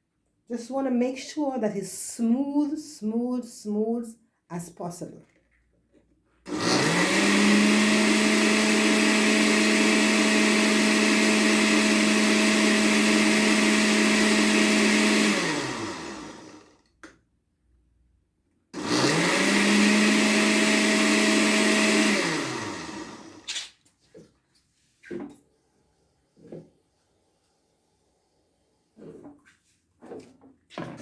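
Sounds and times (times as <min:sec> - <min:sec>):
electric blender running: 0:06.5 - 0:16.8, 0:18.8 - 0:23.5.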